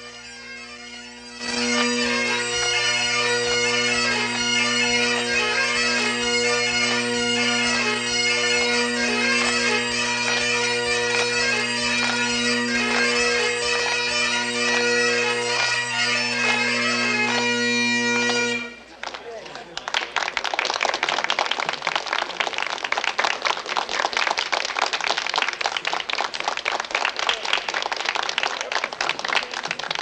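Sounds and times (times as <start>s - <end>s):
bagpipes playing: 0.0s - 18.9s.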